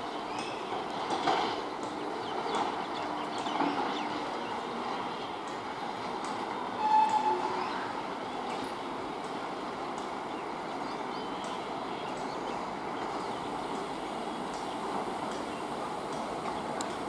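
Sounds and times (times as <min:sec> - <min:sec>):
distant train rumble: 0:00.0 - 0:17.0
brief tone: 0:06.8 - 0:07.8
faint clicks: 0:13.7 - 0:17.0.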